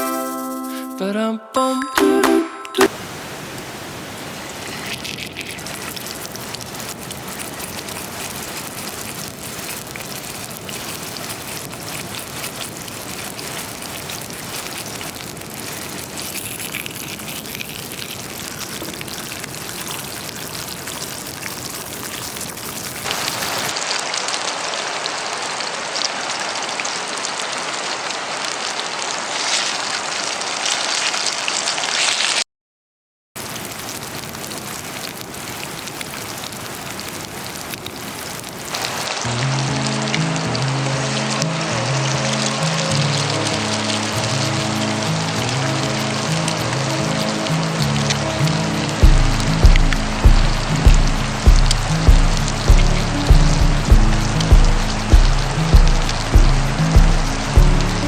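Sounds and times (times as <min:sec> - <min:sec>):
food sizzling in a frying pan: 0:04.4 - 0:25.6, 0:33.4 - 0:58.0.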